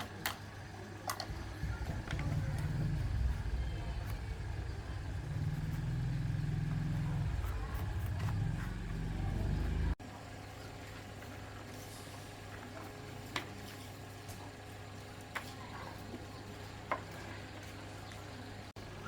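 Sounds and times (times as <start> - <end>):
engine pulsing rumble: 1.2 - 10.0.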